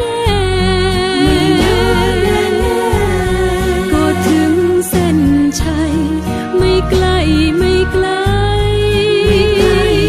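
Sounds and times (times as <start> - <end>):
low musical accompaniment: 0.4 - 10.0
song with wavering held note: 0.6 - 6.8.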